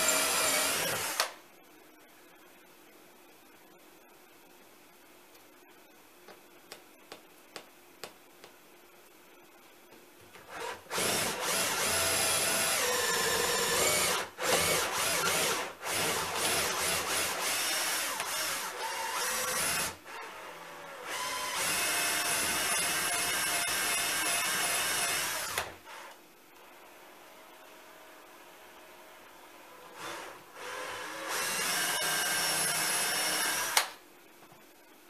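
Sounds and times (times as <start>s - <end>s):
power drill boring through wood: 0.0s - 1.3s, 10.5s - 20.0s, 21.1s - 25.7s, 30.0s - 33.9s.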